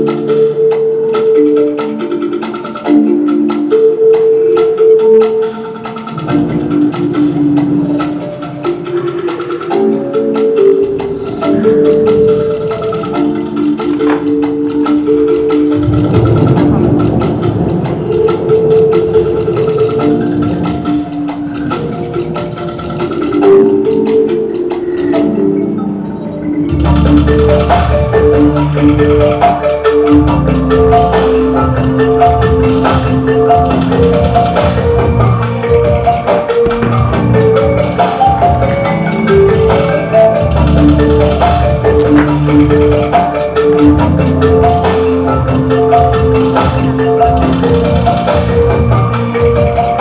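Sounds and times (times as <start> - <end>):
percussion: 0.0 - 50.0
melody of short struck notes: 33.5 - 46.7
bass line: 36.6 - 38.8.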